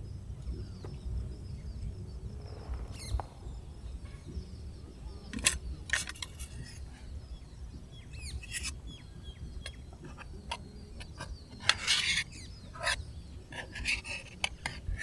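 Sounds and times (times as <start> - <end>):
birds chirping: 0.0 - 15.0
low rumble of wind: 0.0 - 15.0.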